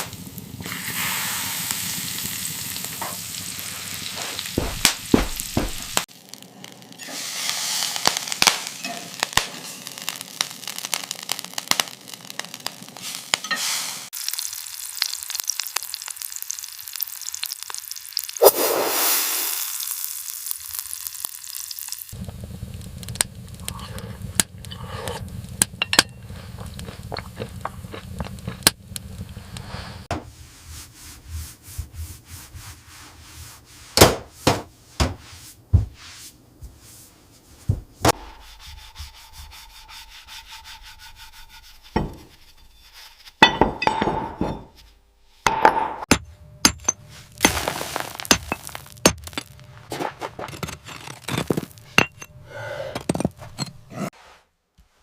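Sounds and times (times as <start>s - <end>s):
rubbing or scraping: 4.2s - 6.1s, 29.4s - 43.4s, 47.0s - 52.0s, 52.7s - 55.0s.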